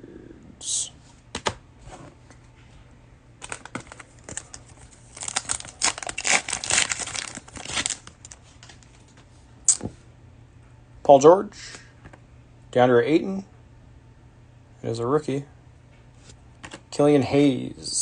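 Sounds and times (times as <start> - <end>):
cellophane wrapper crinkling: 3.4 - 9.1.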